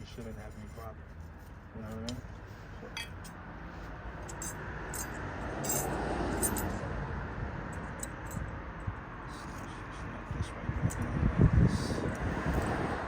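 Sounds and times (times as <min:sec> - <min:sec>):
metallic clinks of tools: 0:04.2 - 0:06.8.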